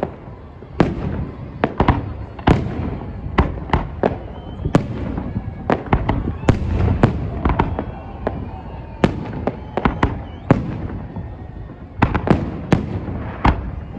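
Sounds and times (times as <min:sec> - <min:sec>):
thin firework whistle: 0:00.0 - 0:13.9.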